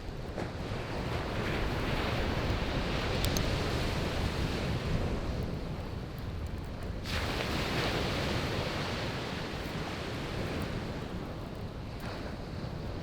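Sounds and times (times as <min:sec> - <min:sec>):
sea waves breaking on beach: 0:00.0 - 0:06.2, 0:07.0 - 0:13.0
wind rumble on microphone: 0:00.0 - 0:13.0
campfire crackling: 0:05.6 - 0:11.8.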